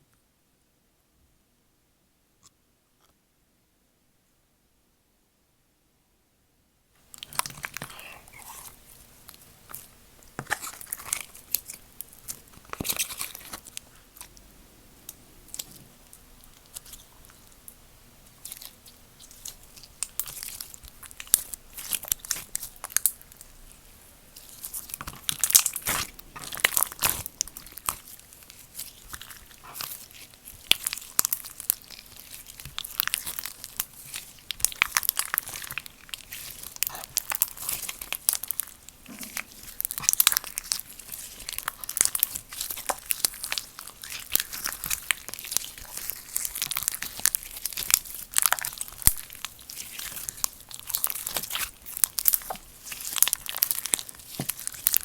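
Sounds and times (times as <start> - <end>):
slime crackling and popping: 7.1 - 14.4, 18.3 - 55.0.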